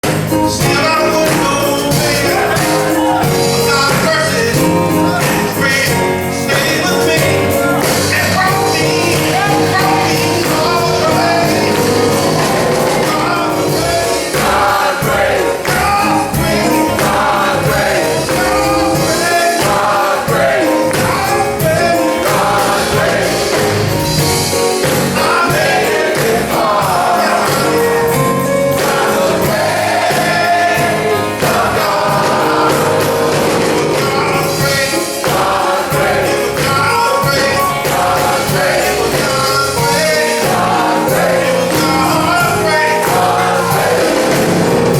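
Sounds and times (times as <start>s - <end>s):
band accompaniment with steady beat: 0.0s - 44.9s
male chorus singing gospel: 0.0s - 44.9s.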